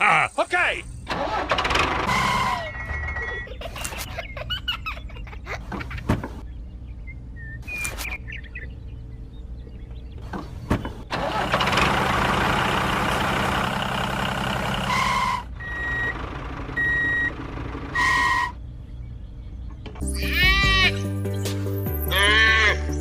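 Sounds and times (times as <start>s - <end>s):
vehicle engine running: 6.2s - 20.2s
reversing alarm beeping: 15.6s - 16.2s, 16.8s - 17.4s.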